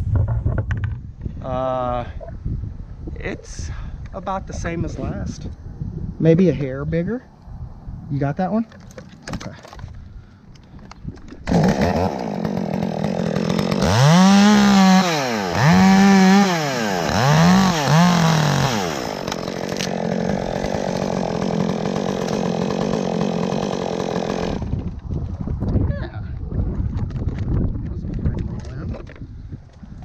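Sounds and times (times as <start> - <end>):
chainsaw revving: 11.4 - 24.7.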